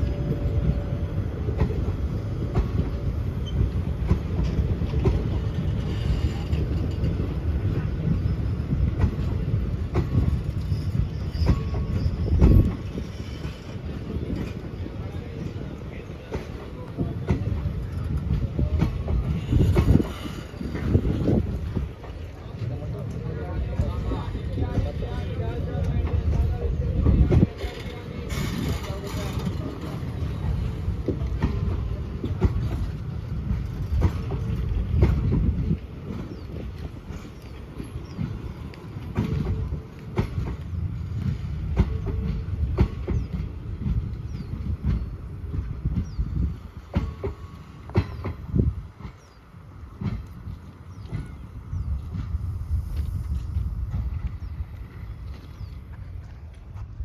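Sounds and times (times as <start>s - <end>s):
train wheels rumbling on track: 0.0s - 57.0s
faint wheel squeal: 10.1s - 13.5s.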